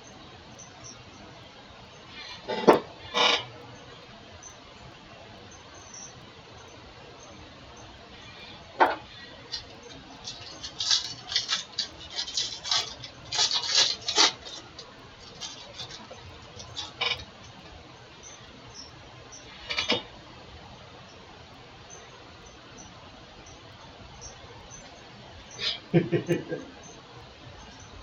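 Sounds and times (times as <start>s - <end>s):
card wrappers crinkling: 9.5s - 17.0s.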